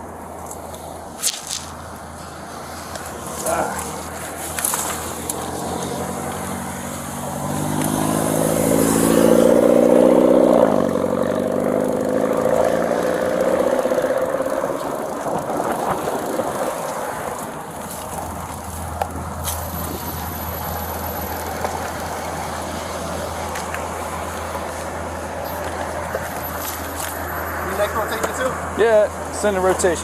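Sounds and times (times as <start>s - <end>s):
vehicle passing by: 1.5s - 30.0s.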